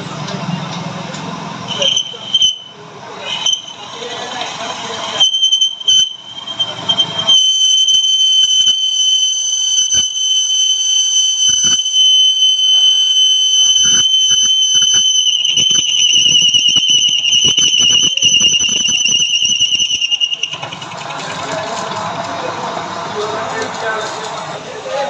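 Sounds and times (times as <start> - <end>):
lathe tool squealing on metal: 1.7 - 8.0, 13.6 - 21.9.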